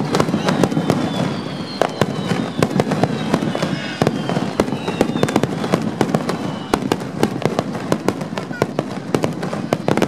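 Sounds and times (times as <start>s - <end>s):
firework shells bursting: 0.0s - 10.0s
fireworks crackle: 0.0s - 10.0s
high descending whistles: 0.2s - 7.0s.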